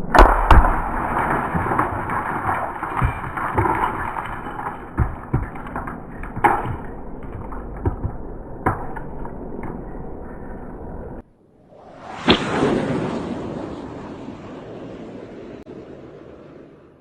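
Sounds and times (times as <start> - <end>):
arrow striking car door and glass: 0.1 - 3.8
steady rushing noise: 7.8 - 17.0.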